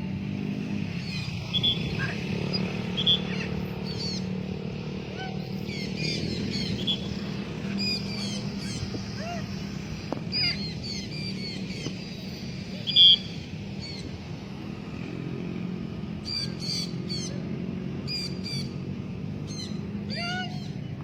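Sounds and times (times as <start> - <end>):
parrot squawking: 1.1 - 4.2, 19.5 - 20.7.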